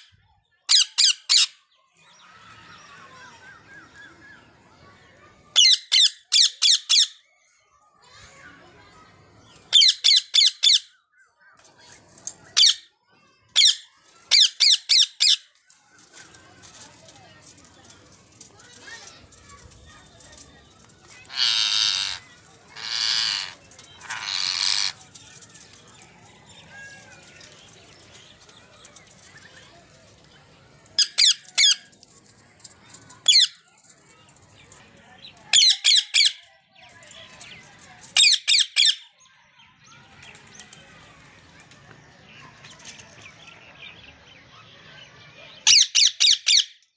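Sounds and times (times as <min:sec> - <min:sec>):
parakeet shrill calls: 0:13.6 - 0:15.5, 0:21.3 - 0:25.0, 0:31.0 - 0:31.8.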